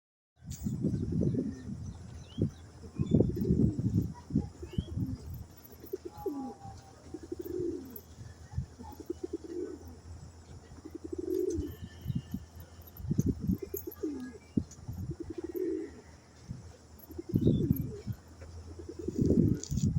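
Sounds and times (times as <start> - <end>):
pigeons cooing: 2.8 - 19.9.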